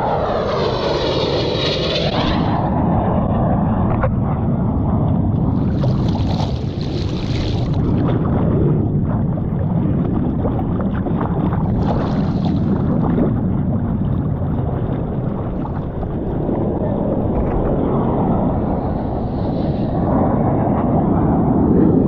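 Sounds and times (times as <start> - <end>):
wind buffeting microphone: 0.0 - 22.0
rushing sea water: 5.5 - 21.1.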